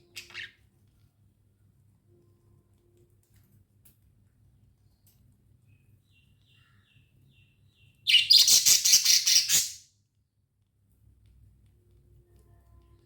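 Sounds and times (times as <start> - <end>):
budgerigar chirping: 8.1 - 9.8.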